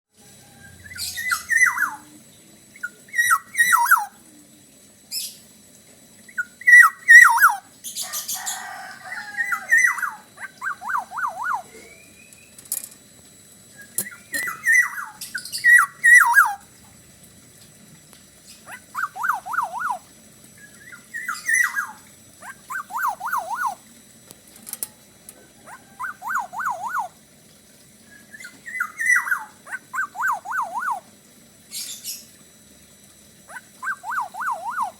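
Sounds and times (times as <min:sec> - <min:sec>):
bird singing fluty whistles: 0:00.6 - 0:02.1, 0:02.8 - 0:04.1, 0:06.3 - 0:07.6, 0:09.4 - 0:12.6, 0:13.7 - 0:16.6, 0:18.9 - 0:20.0, 0:20.6 - 0:22.0, 0:22.7 - 0:23.8, 0:26.0 - 0:27.1, 0:28.1 - 0:31.0, 0:33.8 - 0:34.9.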